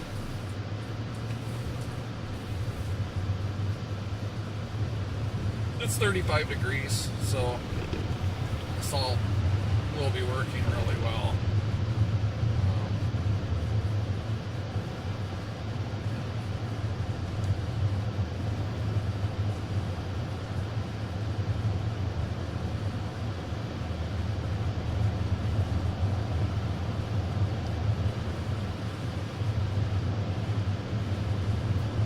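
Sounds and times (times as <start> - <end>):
car road noise rumble: 0.0 - 32.0.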